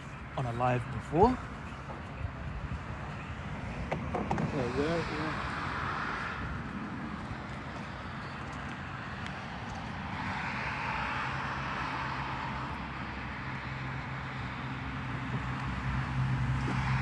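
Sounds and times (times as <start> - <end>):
low engine hum: 0.0 - 17.0
vehicle rushing past: 4.3 - 8.2, 9.0 - 17.0.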